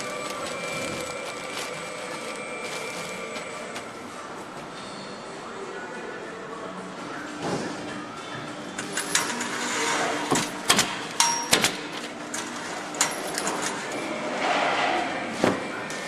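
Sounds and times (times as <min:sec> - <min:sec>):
steady plant hum: 0:00.0 - 0:06.8.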